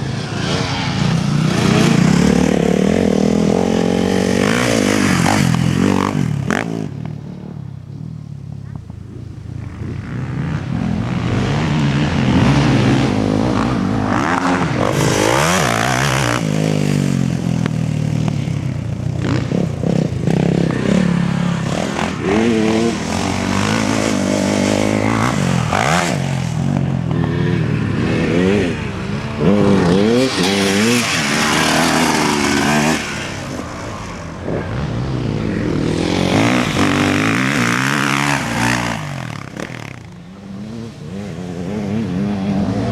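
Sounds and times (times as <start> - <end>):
motocross engines revving: 0.0 - 7.0, 9.2 - 42.9.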